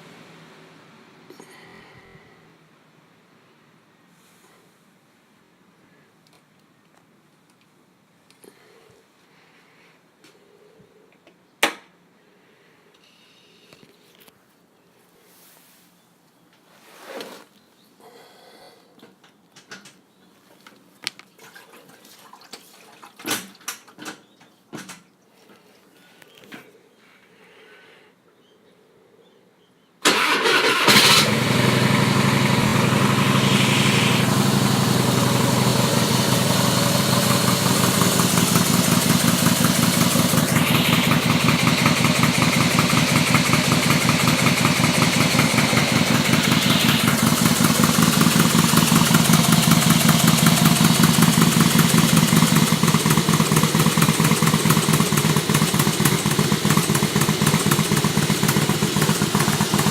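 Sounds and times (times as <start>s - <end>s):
motorcycle engine starting: 30.0s - 59.9s
motorcycle engine idling: 30.2s - 59.9s.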